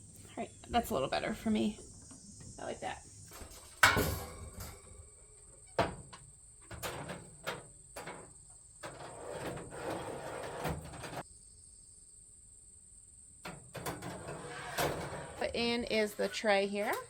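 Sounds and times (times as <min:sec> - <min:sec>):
metal rattling and clattering: 0:03.2 - 0:11.2, 0:13.4 - 0:17.0
metal door clanking shut: 0:03.3 - 0:11.2, 0:13.4 - 0:15.8.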